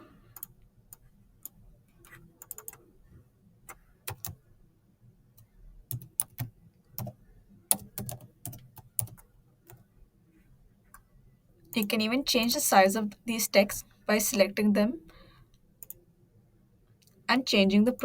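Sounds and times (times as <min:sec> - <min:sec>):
typing on computer keyboard: 0:00.4 - 0:02.8, 0:03.7 - 0:04.4, 0:05.9 - 0:09.8.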